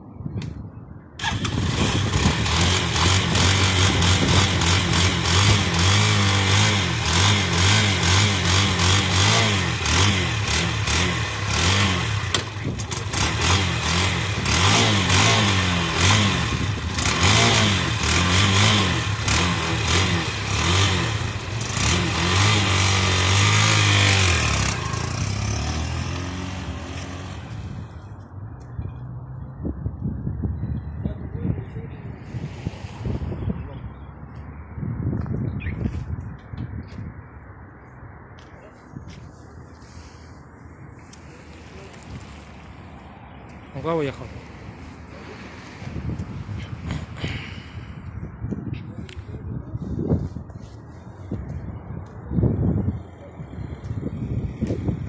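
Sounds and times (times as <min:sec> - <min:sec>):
motorcycle engine revving: 0:01.2 - 0:28.2.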